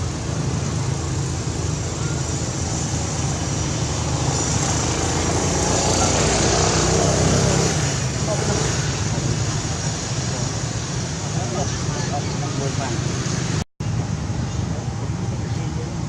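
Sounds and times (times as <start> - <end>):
faint voices: 4.7 - 13.5, 14.2 - 16.0.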